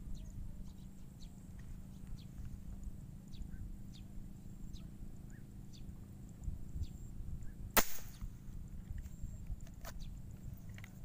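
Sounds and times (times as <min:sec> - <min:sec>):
small bird chirping: 0:00.0 - 0:08.2, 0:08.9 - 0:11.0
steady low rumble: 0:00.0 - 0:11.0.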